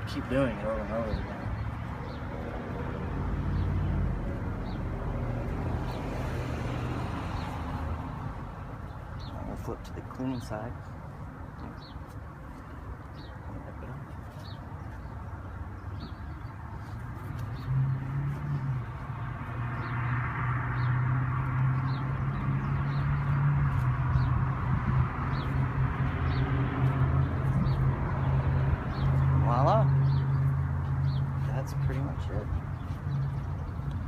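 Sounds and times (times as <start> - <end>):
bird chirping: 0.0 - 6.2, 7.2 - 20.2, 25.3 - 34.0.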